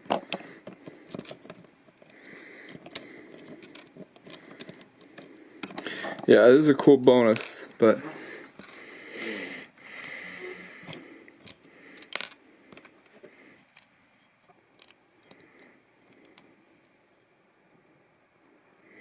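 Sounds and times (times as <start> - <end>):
plastic bricks clicking and scraping: 0.0 - 6.3, 10.9 - 13.9, 14.7 - 16.5.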